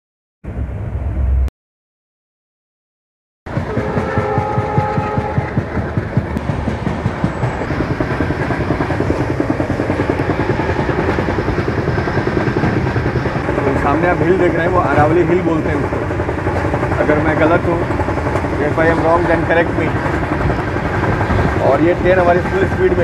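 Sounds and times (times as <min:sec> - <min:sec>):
multi-tone train horn: 0:03.5 - 0:05.9
train rushing noise: 0:03.5 - 0:23.0
train wheels clickety-clack: 0:03.5 - 0:23.0.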